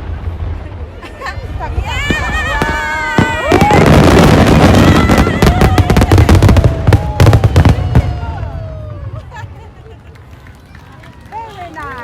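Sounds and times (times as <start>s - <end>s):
fireworks crackling and banging: 0.0s - 12.0s
fireworks whistling: 1.7s - 8.6s.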